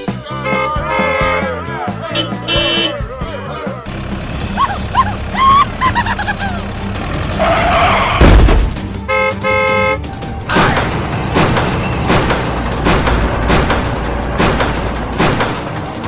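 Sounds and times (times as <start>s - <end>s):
short horn toots: 2.1s - 3.0s
loud thud: 8.2s - 8.8s.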